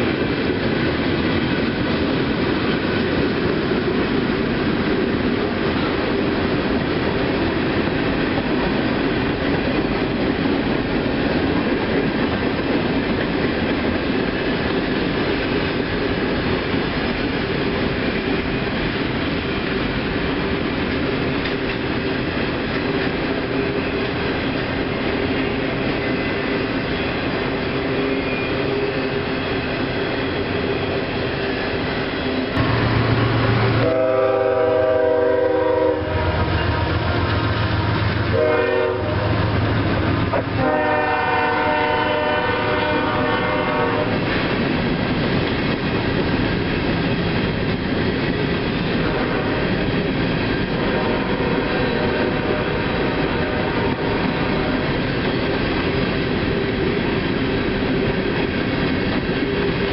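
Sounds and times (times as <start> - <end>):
diesel locomotive hum: 0.0 - 59.9
freight train rolling past: 0.0 - 59.9
wheels clacking on rails: 0.0 - 59.9
locomotive horn blasts: 33.7 - 36.6, 38.3 - 39.4, 40.3 - 44.2, 49.0 - 49.6.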